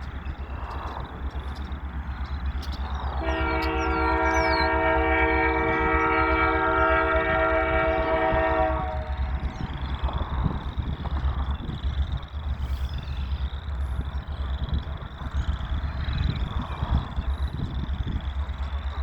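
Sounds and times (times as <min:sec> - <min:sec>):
low rumble of train: 0:00.0 - 0:19.0
locomotive air horn chord: 0:03.1 - 0:09.4.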